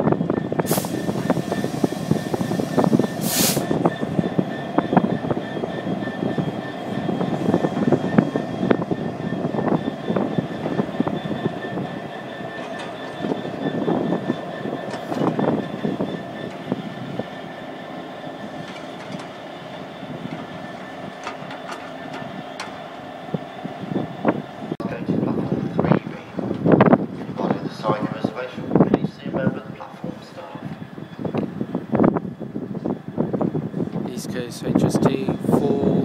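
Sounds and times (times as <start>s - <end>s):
wheels clanking over rail joints: 0.0s - 28.1s
freight train rolling past: 0.0s - 36.0s.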